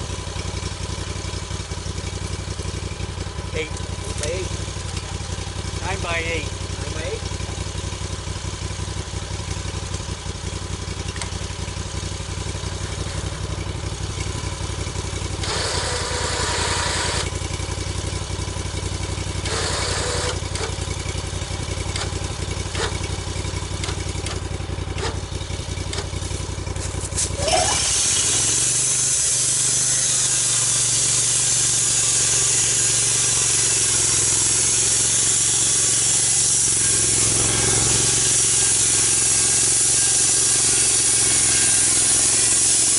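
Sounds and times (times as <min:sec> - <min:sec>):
saw engine idling and revving: 0:00.0 - 0:42.9
saw cutting through log: 0:03.2 - 0:07.3, 0:14.2 - 0:42.9.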